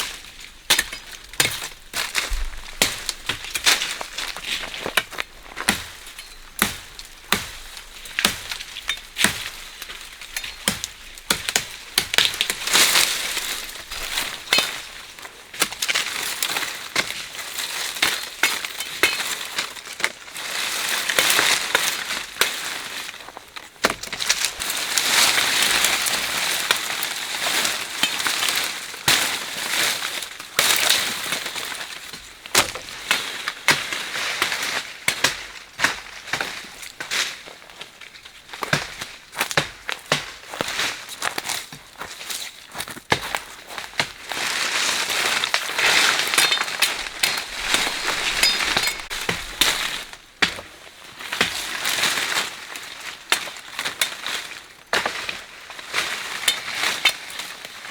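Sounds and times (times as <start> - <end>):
branches snapping: 0.0 - 20.2, 30.1 - 55.4
leafy rustling: 0.0 - 35.0, 40.4 - 57.9.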